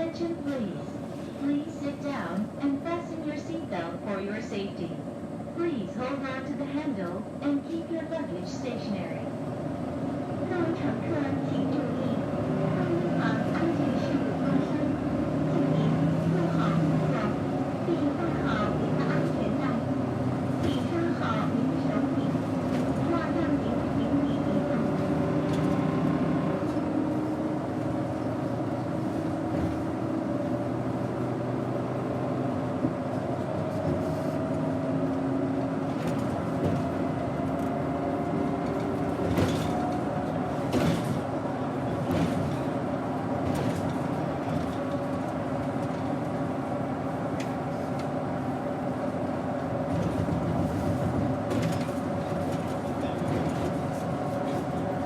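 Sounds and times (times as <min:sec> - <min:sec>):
bus engine running: 0:00.0 - 0:55.0
knocks and rattles from bus body: 0:19.2 - 0:23.5, 0:24.7 - 0:27.2, 0:27.8 - 0:31.6, 0:32.2 - 0:46.4, 0:49.8 - 0:55.0.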